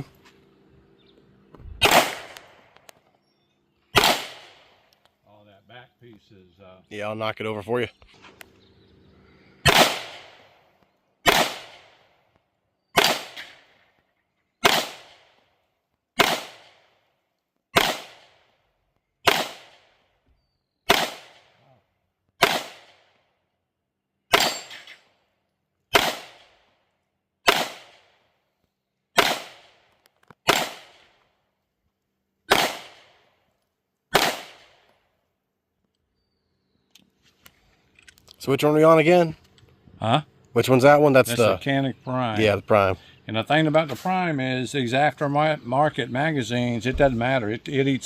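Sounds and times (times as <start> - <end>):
pistol shots with echo: 1.8 - 2.8, 3.9 - 4.8, 9.6 - 10.6, 11.2 - 12.2, 13.0 - 13.8, 14.6 - 15.5, 16.2 - 17.0, 17.7 - 18.6, 19.2 - 20.1, 20.9 - 21.6, 22.4 - 23.2, 24.3 - 24.9, 25.9 - 26.7, 27.4 - 28.3, 29.2 - 31.2, 32.5 - 33.3, 34.1 - 34.9.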